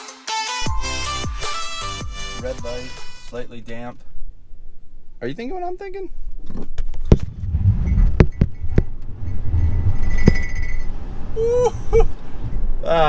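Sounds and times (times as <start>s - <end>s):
tyres rumbling on road: 6.9s - 13.0s.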